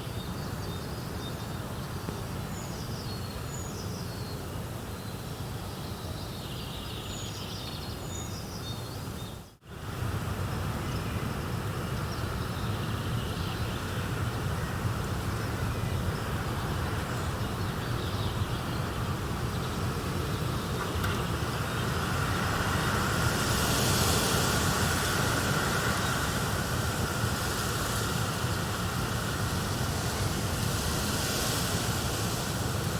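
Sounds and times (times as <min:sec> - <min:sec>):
rushing nature ambience: 0:00.0 - 0:32.9
birds chirping: 0:12.1 - 0:32.9.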